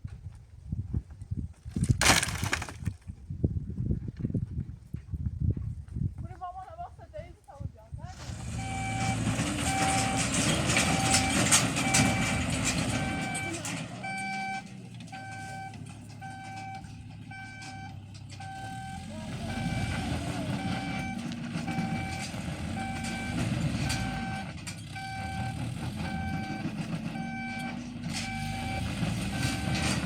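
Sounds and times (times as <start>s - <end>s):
low engine rumble: 6.2s - 30.0s
reversing alarm beeping: 8.5s - 30.0s.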